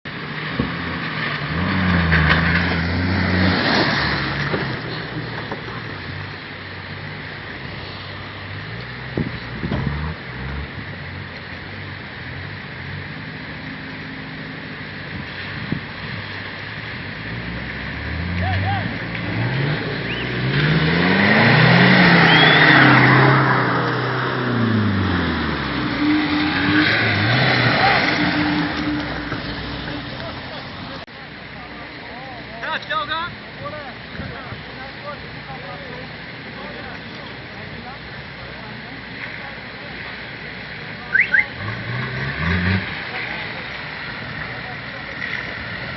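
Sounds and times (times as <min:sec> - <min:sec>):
motocross bike engine revving: 0:17.2 - 0:31.0, 0:41.1 - 0:45.9.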